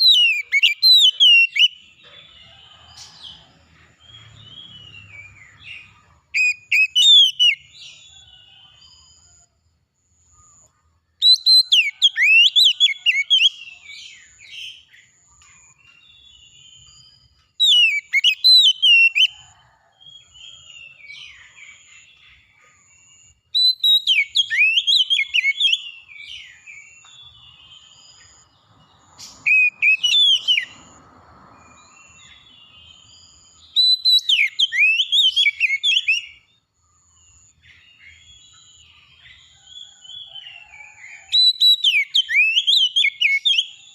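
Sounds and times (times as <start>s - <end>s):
bird singing whistled phrases: 0.0s - 1.8s, 4.7s - 7.8s, 11.2s - 14.8s, 17.6s - 19.4s, 23.6s - 26.7s, 29.3s - 30.8s, 33.7s - 36.4s, 41.3s - 43.9s.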